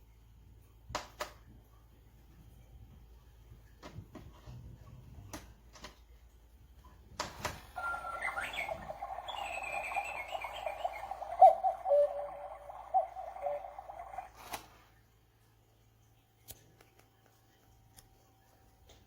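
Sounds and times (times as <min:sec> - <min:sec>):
cuckoo clock warbling chirping: 0:07.8 - 0:14.6.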